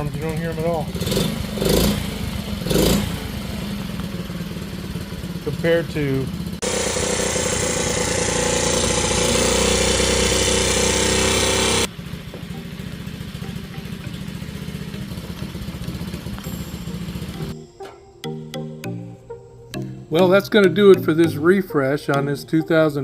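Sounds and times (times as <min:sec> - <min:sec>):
small motorbike engine running: 0:00.0 - 0:17.6.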